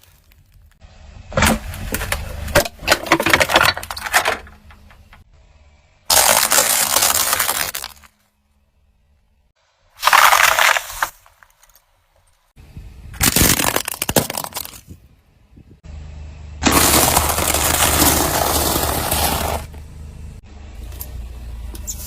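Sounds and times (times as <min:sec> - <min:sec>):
objects crunching under a tyre: 0:00.0 - 0:05.2, 0:06.1 - 0:08.3, 0:10.0 - 0:12.5, 0:13.2 - 0:15.0, 0:16.6 - 0:19.8
low engine rumble: 0:00.1 - 0:06.1, 0:14.9 - 0:22.0
snaps and cracks: 0:06.1 - 0:08.1.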